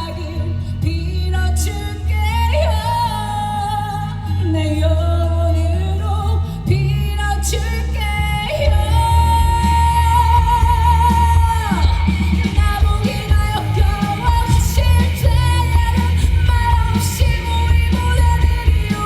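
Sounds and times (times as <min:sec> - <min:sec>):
woman singing: 0:00.0 - 0:19.0
rock band playing: 0:08.7 - 0:19.0.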